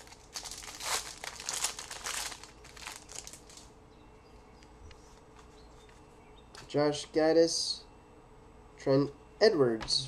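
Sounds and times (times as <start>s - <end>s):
plastic wrapper crinkling: 0.0s - 3.7s.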